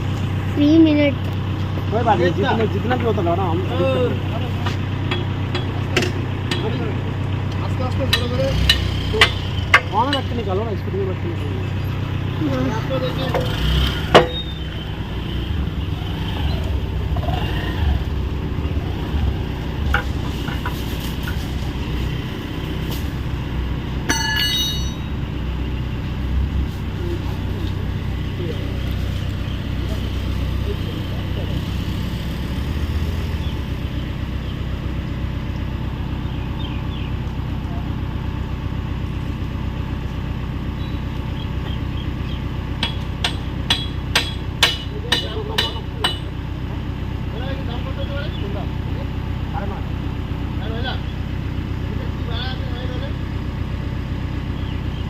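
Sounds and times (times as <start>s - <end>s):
excavator diesel engine idling: 0.0s - 55.0s
hammer striking steel: 24.1s - 25.2s, 42.8s - 46.3s
metallic ring: 24.1s - 25.2s.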